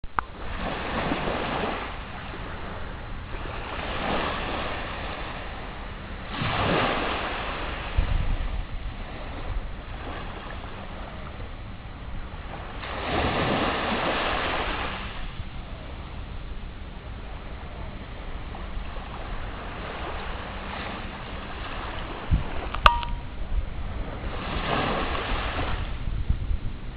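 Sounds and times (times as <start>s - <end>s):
sea waves washing in: 0.2s - 26.6s
steady low rumble: 7.2s - 13.0s, 15.2s - 24.6s, 25.6s - 26.9s.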